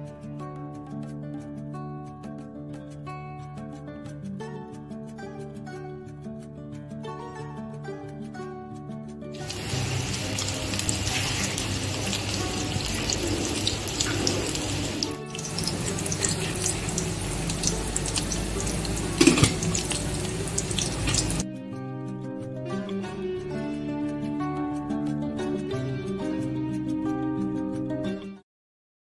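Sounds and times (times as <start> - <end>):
plucked-string music: 0.0 - 28.4
cutlets sizzling in oil: 9.4 - 21.4
oil popping: 9.4 - 21.4.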